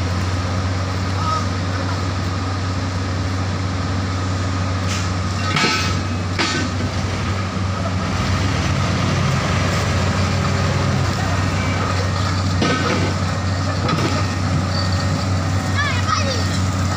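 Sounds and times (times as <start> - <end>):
heavy diesel engine running: 0.0 - 16.9
metallic clanks: 4.9 - 6.8.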